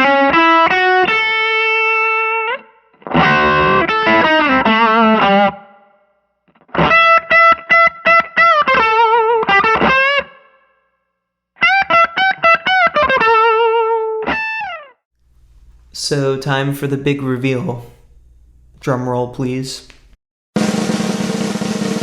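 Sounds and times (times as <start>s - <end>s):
overdriven electric guitar lead: 0.0s - 5.7s, 6.6s - 10.5s, 11.6s - 14.8s.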